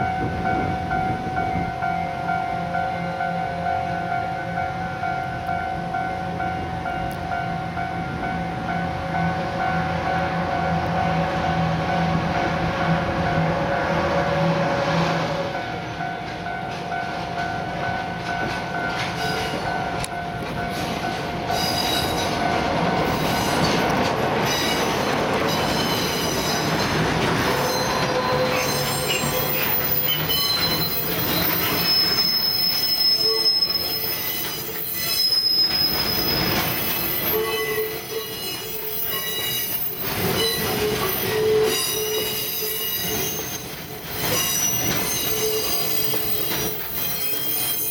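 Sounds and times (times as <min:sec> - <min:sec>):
locomotive engine hum: 0:04.9 - 0:33.0
wheel squeal: 0:23.0 - 0:47.9.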